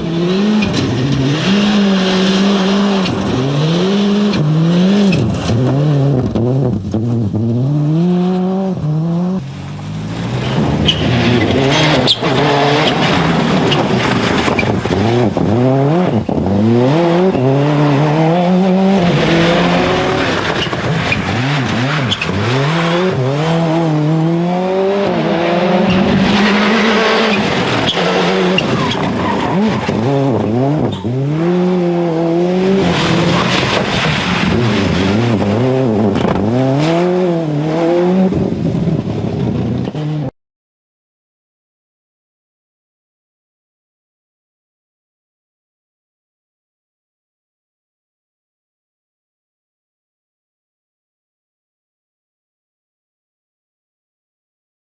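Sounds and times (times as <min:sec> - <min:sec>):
rally car engine revving: 0:00.0 - 0:40.3
tyre squeal and skidding: 0:00.4 - 0:06.0, 0:10.2 - 0:23.7, 0:25.1 - 0:31.9, 0:32.5 - 0:37.0.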